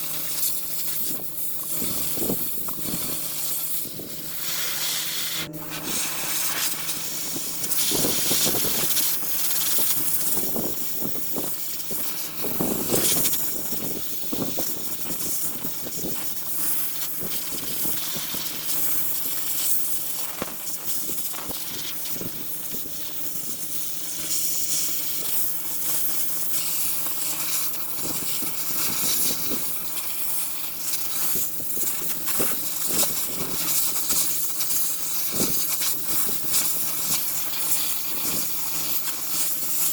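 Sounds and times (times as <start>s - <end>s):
power tool scouring metal: 0.0s - 22.0s.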